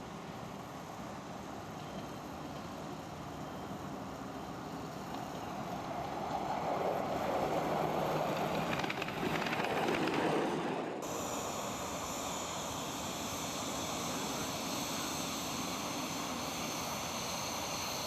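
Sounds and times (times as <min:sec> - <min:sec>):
miniature train running: 0:00.0 - 0:18.0
outdoor background wash: 0:00.0 - 0:18.0.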